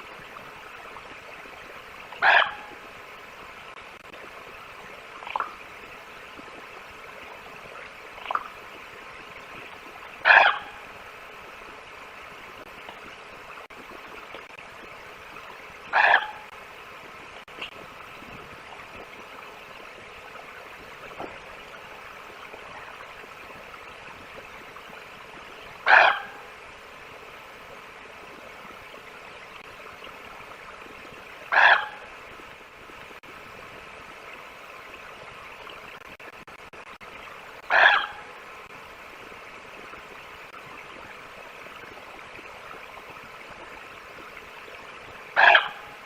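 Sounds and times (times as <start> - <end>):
steady hiss: 0.0 - 46.0
raven croaking: 2.2 - 2.8, 10.2 - 10.8, 15.9 - 16.5, 25.8 - 26.5, 31.5 - 32.1, 37.7 - 38.3, 45.4 - 46.0.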